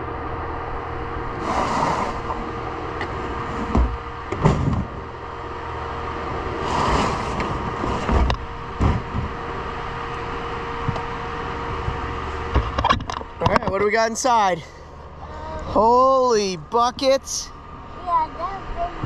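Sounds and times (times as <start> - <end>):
utility vehicle engine whining: 0.0 - 19.0
sharp knocks and thumps: 3.0 - 5.0, 7.4 - 9.4, 11.9 - 13.8.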